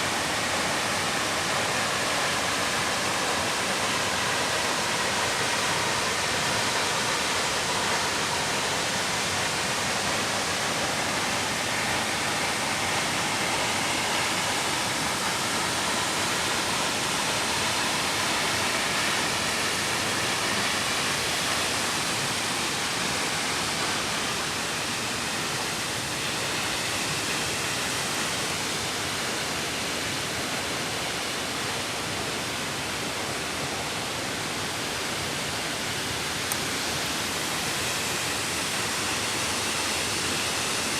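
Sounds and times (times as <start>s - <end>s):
creek water rushing: 0.0s - 40.9s.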